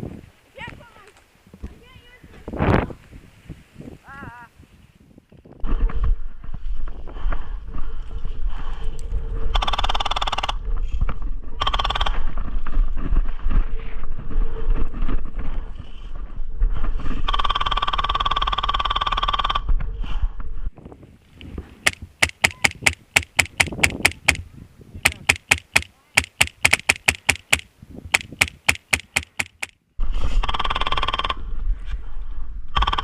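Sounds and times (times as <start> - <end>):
wind buffeting microphone: 0.0 - 17.4, 19.5 - 29.2
airsoft full-auto bursts: 21.8 - 24.4, 25.0 - 29.7
sharp airsoft shot cracks: 21.8 - 24.4, 25.0 - 29.7.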